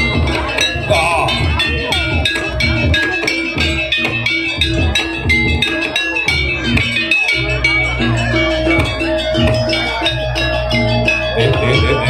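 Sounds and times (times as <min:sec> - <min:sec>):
tuned metal percussion: 0:00.0 - 0:12.0.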